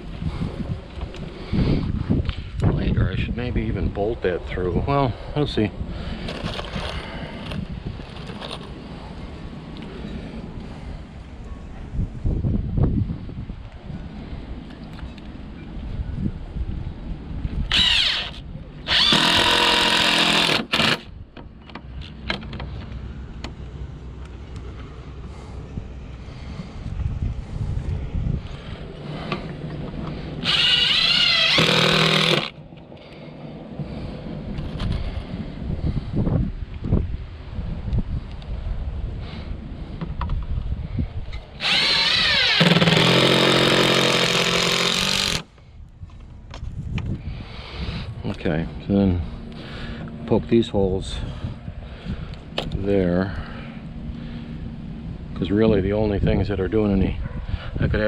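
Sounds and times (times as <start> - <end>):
power drill driving screws: 17.7 - 21.1, 30.4 - 32.5, 41.6 - 45.5.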